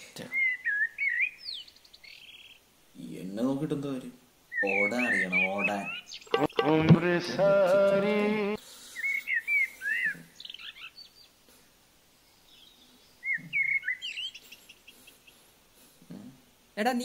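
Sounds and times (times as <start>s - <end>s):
birds chirping: 0.0s - 3.2s, 4.5s - 7.9s, 8.7s - 11.5s, 12.1s - 16.3s
loud held note: 6.4s - 7.2s.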